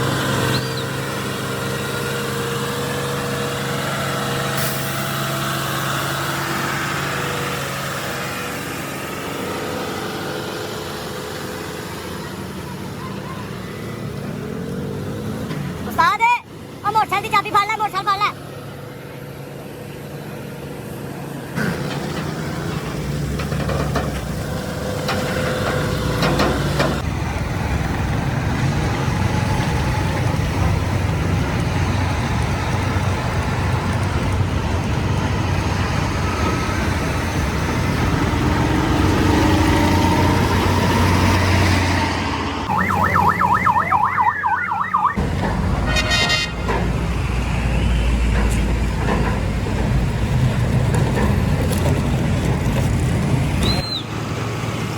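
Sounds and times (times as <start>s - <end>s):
heavy road vehicles rumbling: 0.0s - 54.9s
siren yelping: 42.7s - 45.2s.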